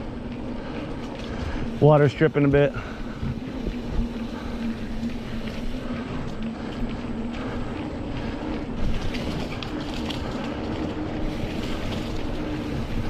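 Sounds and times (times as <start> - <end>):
bike rattles and clicks: 0.0 - 13.0
bike tyre noise on dirt: 0.0 - 13.0
wind on microphone: 11.3 - 13.0.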